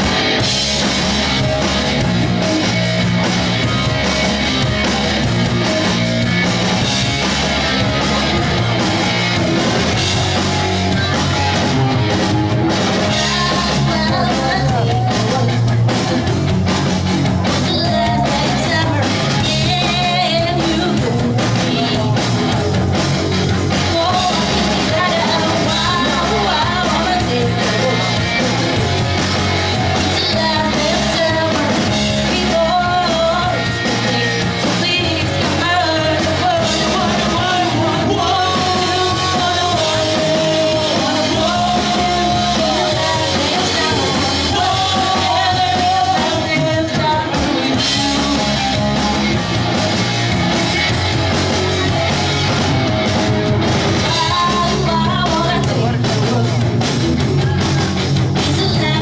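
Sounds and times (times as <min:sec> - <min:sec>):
pop-punk band playing: 0:00.0 - 0:59.0
lead vocal singing: 0:12.9 - 0:16.8, 0:17.4 - 0:22.6, 0:23.7 - 0:48.9, 0:54.0 - 0:59.0.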